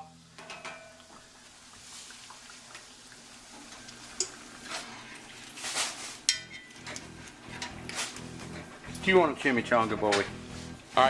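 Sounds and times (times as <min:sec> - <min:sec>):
food sizzling in hot oil: 0:00.2 - 0:06.4.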